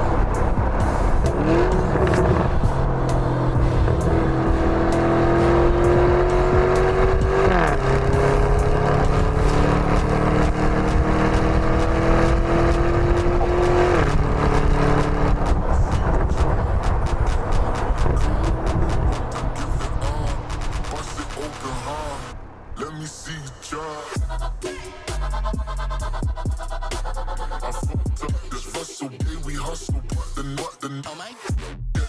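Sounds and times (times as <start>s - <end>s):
car engine accelerating: 0.0s - 24.6s.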